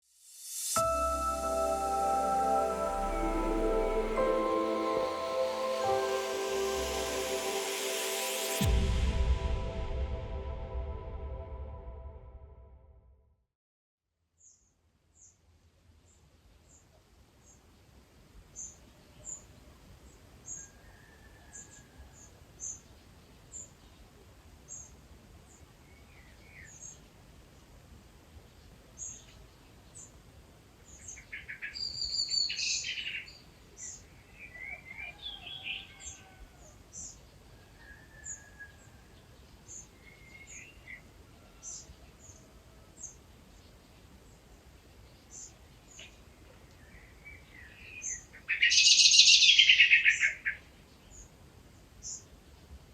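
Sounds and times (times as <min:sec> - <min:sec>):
thin high bird note: 0:00.2 - 0:11.2
trilled bird song: 0:30.9 - 0:36.3.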